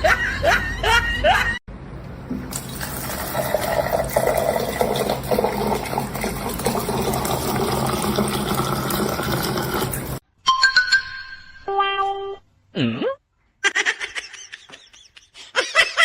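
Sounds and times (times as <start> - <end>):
water flowing: 2.1 - 10.2.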